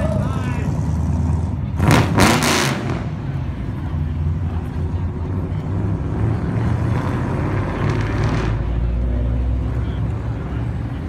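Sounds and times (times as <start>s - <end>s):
cars rolling past: 0.0s - 11.0s.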